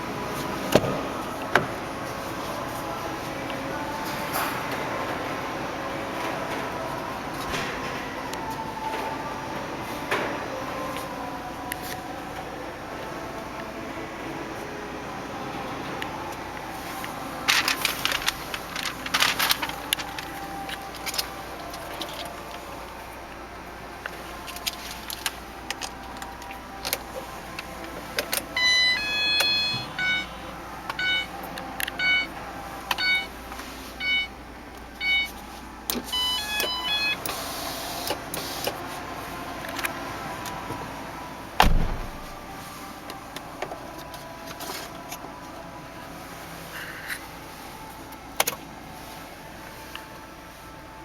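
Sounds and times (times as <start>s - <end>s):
car warning chime beeping: 28.6s - 31.4s, 32.0s - 33.4s, 34.0s - 34.4s, 35.0s - 35.4s, 36.0s - 37.4s
car door shutting: 41.6s - 42.4s.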